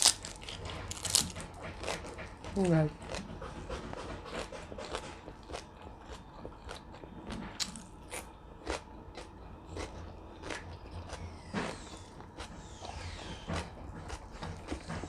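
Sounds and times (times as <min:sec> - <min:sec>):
crunchy food chewing: 0:00.0 - 0:15.0.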